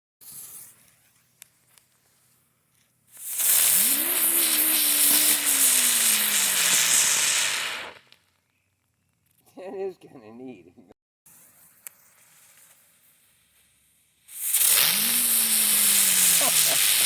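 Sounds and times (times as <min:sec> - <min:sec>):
firework hissing sparks: 0:00.2 - 0:01.1, 0:03.1 - 0:08.2, 0:11.3 - 0:17.0.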